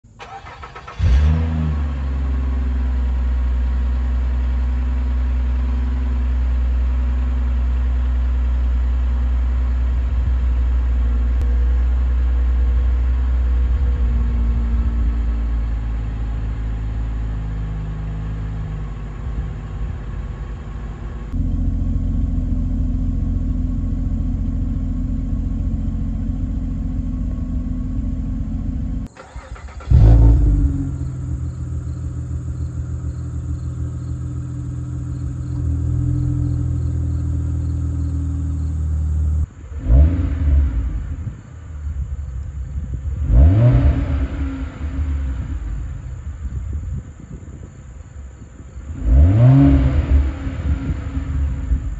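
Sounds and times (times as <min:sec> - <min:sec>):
car engine starting and idling: 0:00.0 - 0:51.9.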